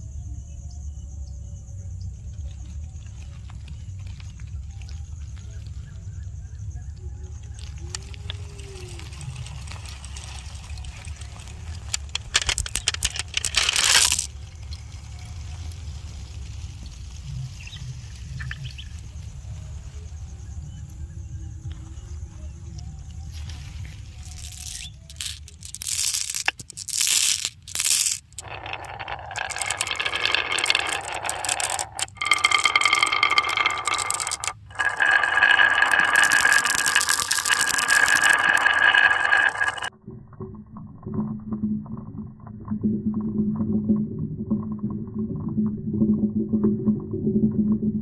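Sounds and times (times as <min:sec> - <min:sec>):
marbles rolling on wooden tracks: 0:02.4 - 0:05.9, 0:07.3 - 0:20.0, 0:23.2 - 0:39.9.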